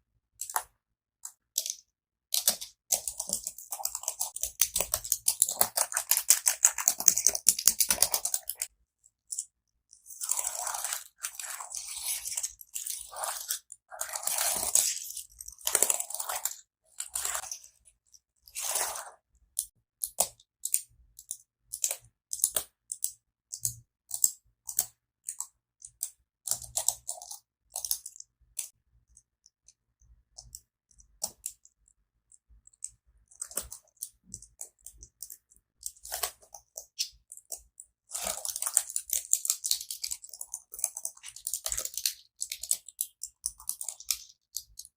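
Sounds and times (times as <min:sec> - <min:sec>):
computer keyboard keys clicking: 0:00.4 - 0:08.7, 0:19.6 - 0:28.7, 0:30.4 - 0:44.9.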